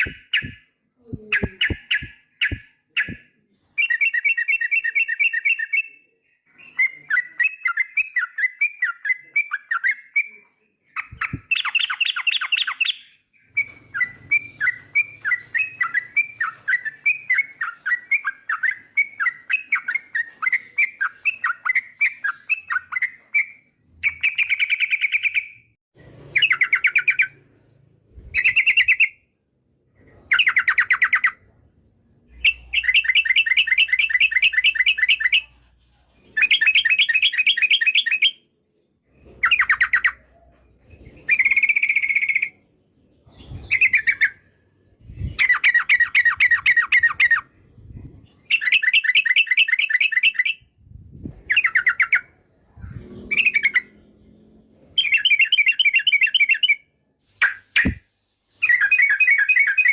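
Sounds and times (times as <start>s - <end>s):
bulbul singing fast repeated notes: 0.0s - 3.2s.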